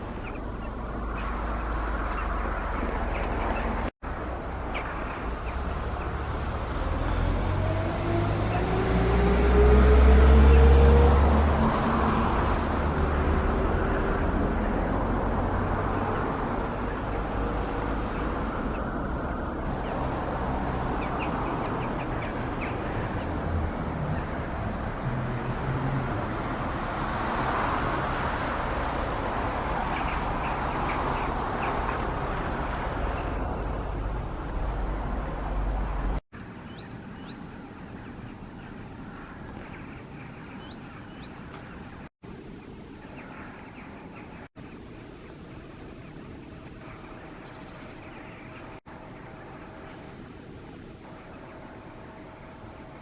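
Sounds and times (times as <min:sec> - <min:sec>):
bird calls: 0:00.0 - 0:03.9, 0:04.6 - 0:06.3, 0:20.9 - 0:24.6, 0:36.4 - 0:50.2
city traffic rumble: 0:00.0 - 0:53.0.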